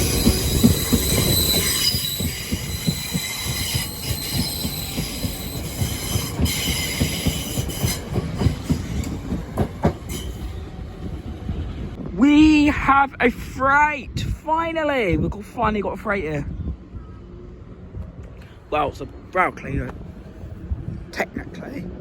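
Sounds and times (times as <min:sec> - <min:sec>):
train wheels squealing: 0:00.0 - 0:09.3, 0:09.9 - 0:10.6
train rumble and rail knocking: 0:00.0 - 0:22.0.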